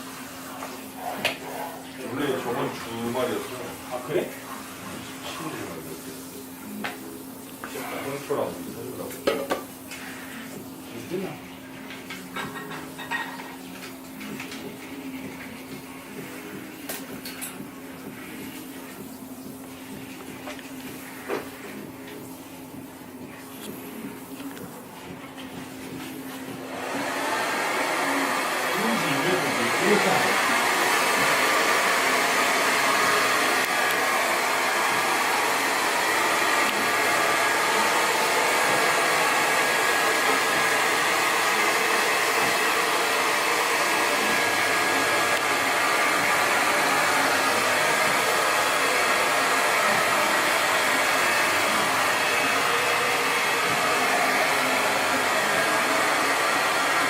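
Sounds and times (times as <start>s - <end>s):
hair dryer blowing: 0.0s - 7.0s, 14.2s - 57.0s.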